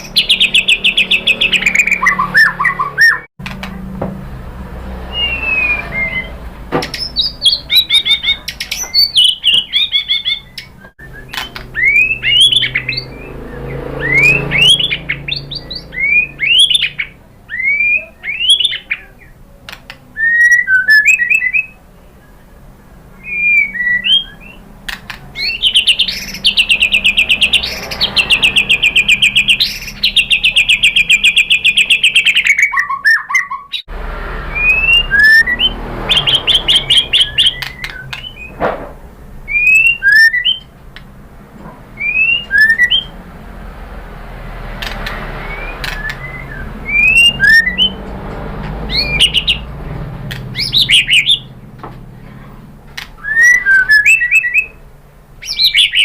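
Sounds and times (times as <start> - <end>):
bird singing rapid trills: 0.0 - 3.3, 5.0 - 19.4, 20.1 - 38.6, 39.5 - 40.8, 42.0 - 43.2, 44.8 - 48.1, 48.8 - 49.8, 50.4 - 51.7, 53.2 - 54.8, 55.4 - 56.0
bird whistled rising notes: 0.0 - 3.3, 5.0 - 18.9, 20.2 - 21.8, 23.2 - 24.6, 25.4 - 38.6, 39.5 - 40.7, 42.0 - 43.2, 45.3 - 48.0, 48.8 - 49.6, 50.5 - 51.5, 53.2 - 54.8, 55.4 - 56.0.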